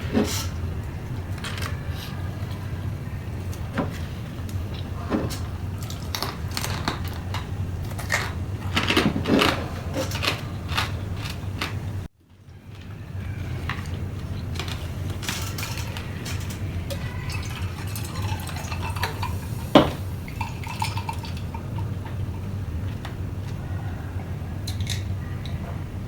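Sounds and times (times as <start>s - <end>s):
utensils clinking on dishes: 4.7s - 11.8s, 12.7s - 23.6s, 24.6s - 25.6s.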